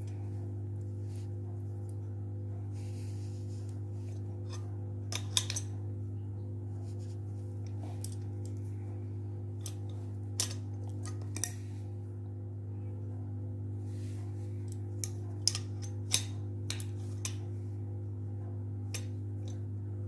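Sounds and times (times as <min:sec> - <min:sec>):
metal tools clicking: 0:09.6 - 0:11.6, 0:14.7 - 0:17.4.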